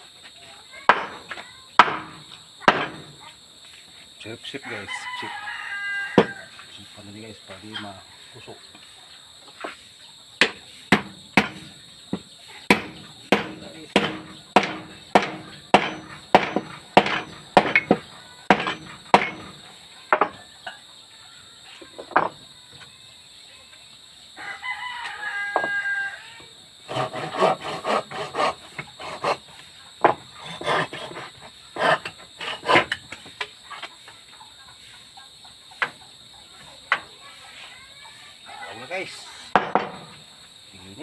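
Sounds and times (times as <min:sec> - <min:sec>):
hammer blows on wood: 0:00.9 - 0:03.2, 0:10.4 - 0:20.4
rooster crowing: 0:04.5 - 0:06.7, 0:24.3 - 0:27.6.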